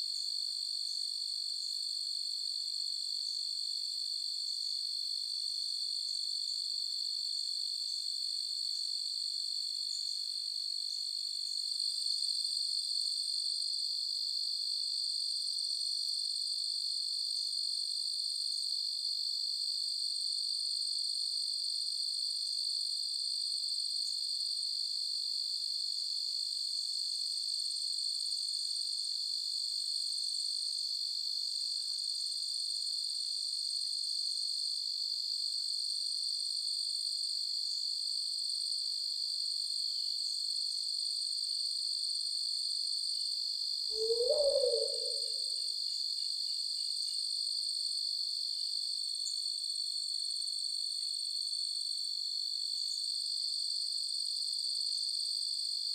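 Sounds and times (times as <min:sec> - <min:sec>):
crickets trilling: 0:43.9 - 0:47.2.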